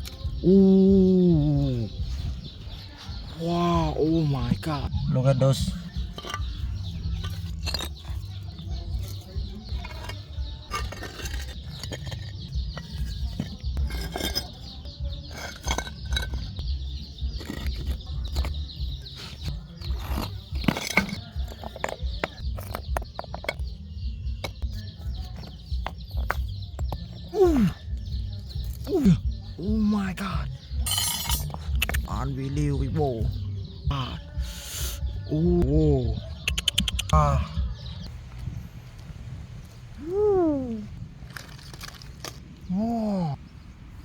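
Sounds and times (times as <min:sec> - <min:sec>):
low rumble on microphone: 0:35.1 - 0:41.3
clicks and rustles: 0:41.2 - 0:42.7.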